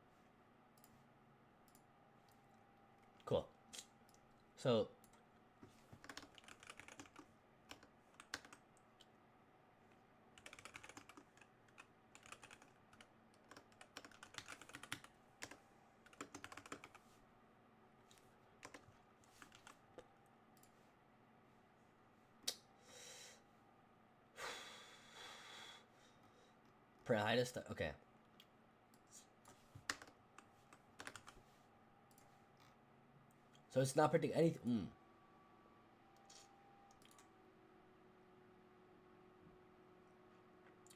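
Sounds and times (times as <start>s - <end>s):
computer keyboard typing: 6.0s - 9.1s, 10.4s - 17.0s, 18.6s - 19.8s, 29.8s - 31.4s.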